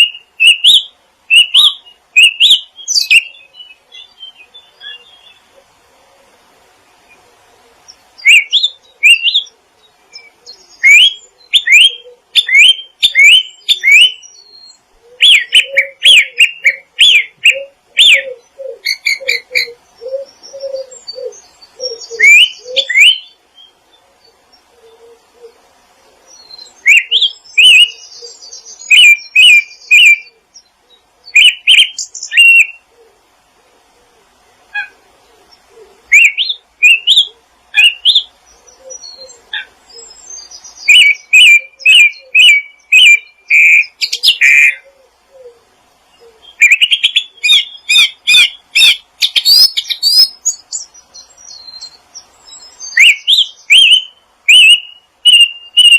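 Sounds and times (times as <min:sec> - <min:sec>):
faint low bird calls: 0:00.0 - 0:55.9
songbirds chirping and singing: 0:00.0 - 0:55.9.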